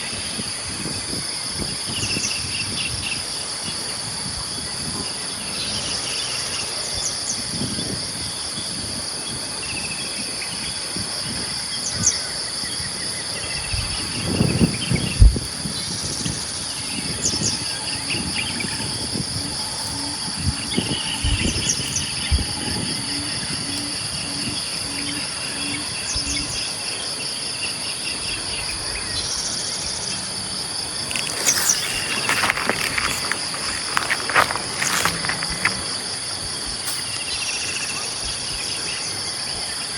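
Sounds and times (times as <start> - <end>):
insect high steady buzz: 0.0 - 39.9
insects pulsing trill: 0.0 - 39.9.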